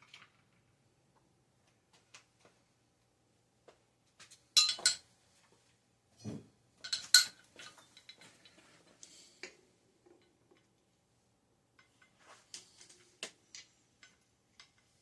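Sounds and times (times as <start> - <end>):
metal tools clinking: 4.6 - 5.0, 6.8 - 8.6.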